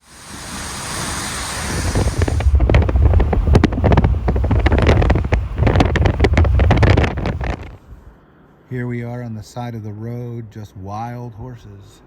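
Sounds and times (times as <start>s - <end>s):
wind buffeting microphone: 0.0s - 8.1s
thumps on microphone: 1.8s - 7.8s.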